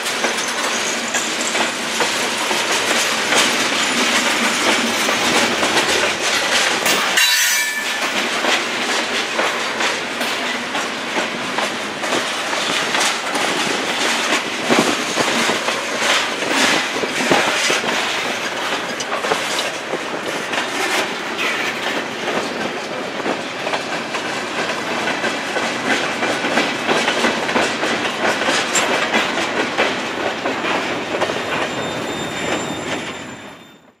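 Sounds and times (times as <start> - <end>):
wheels clacking over rail joints: 0.0 - 33.3
high wheel squeal: 31.4 - 33.8.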